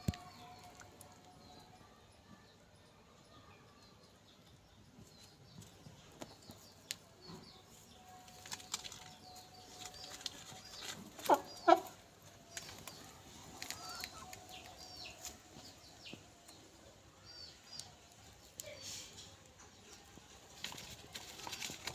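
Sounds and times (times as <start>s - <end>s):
chicks peeping: 5.0s - 16.6s
chickens pecking: 5.0s - 21.9s.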